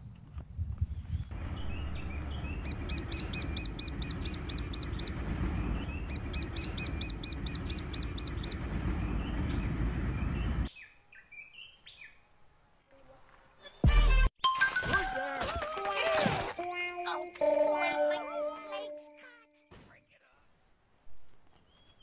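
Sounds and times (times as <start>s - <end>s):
low rumble: 1.3s - 10.7s
songbird repeated high chirps: 1.6s - 5.2s, 5.8s - 9.3s.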